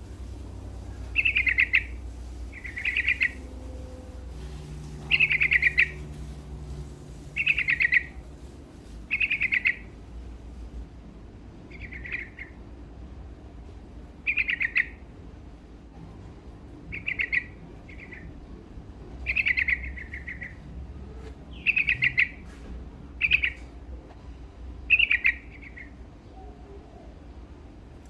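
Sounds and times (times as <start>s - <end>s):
faint low hum: 0.0s - 28.0s
bird singing rapid notes: 1.1s - 3.5s, 4.9s - 6.1s, 7.4s - 8.2s, 9.1s - 9.9s, 11.7s - 12.6s, 14.2s - 15.0s, 16.9s - 18.4s, 19.2s - 20.6s, 21.5s - 22.4s, 23.2s - 23.7s, 24.9s - 26.6s.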